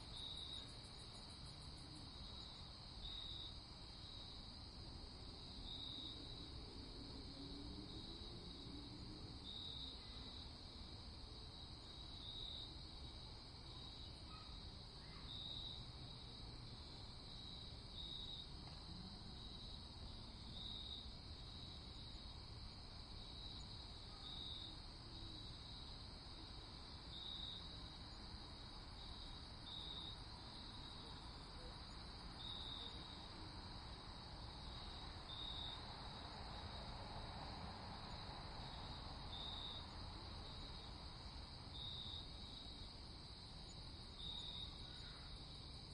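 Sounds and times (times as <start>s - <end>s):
crickets chirping: 0.0s - 45.9s.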